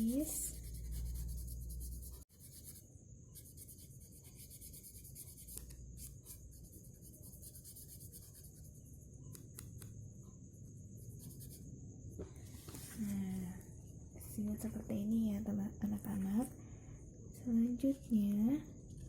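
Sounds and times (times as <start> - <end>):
colouring tool scratching paper: 0.0 - 2.8, 3.4 - 8.9.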